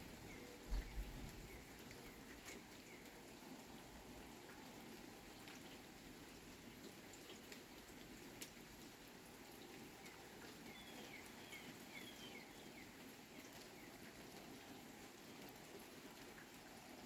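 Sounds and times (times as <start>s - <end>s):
faint rain: 0.0s - 17.0s
bird chirping: 0.2s - 2.2s, 10.6s - 14.0s
water drips: 0.2s - 17.0s.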